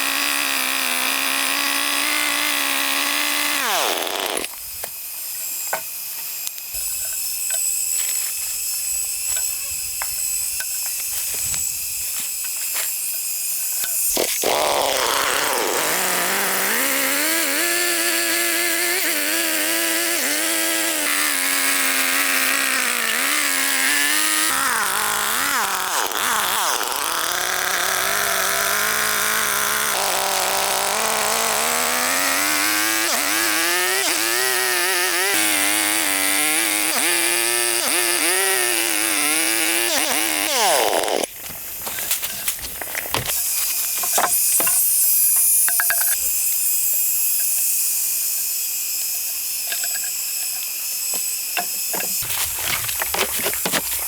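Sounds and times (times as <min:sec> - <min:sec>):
chainsaw engine running: 0:00.0 - 0:04.6, 0:14.1 - 0:46.4, 0:47.1 - 0:54.0
power tool whine with clicks: 0:03.0 - 0:11.7, 0:33.0 - 0:54.0.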